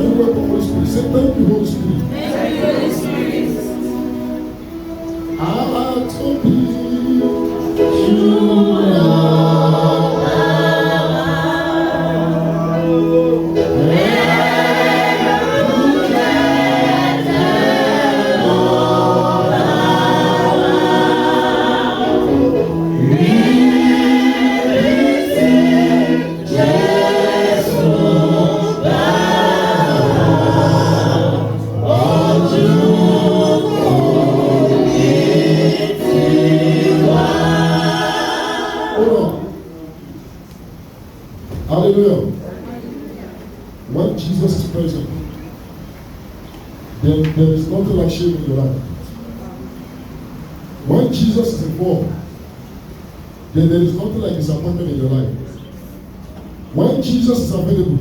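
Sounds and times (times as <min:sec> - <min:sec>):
group singing gospel song: 0:00.0 - 0:39.8.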